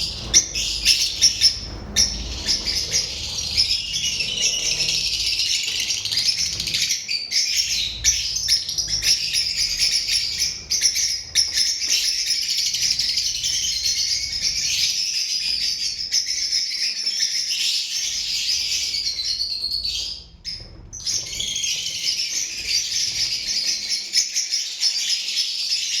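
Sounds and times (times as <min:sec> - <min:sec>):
birds chattering: 0:00.0 - 0:26.0.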